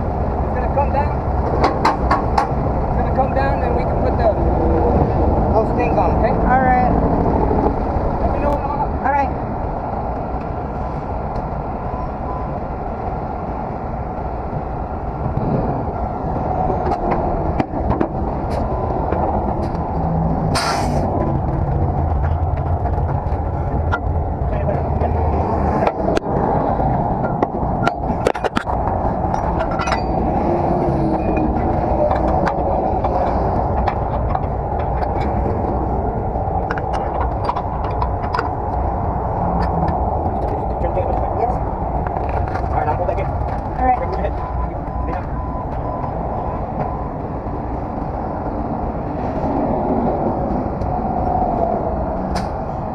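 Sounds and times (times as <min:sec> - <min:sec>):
air hissing: 0:20.5 - 0:21.1
metal clanks: 0:27.2 - 0:30.4.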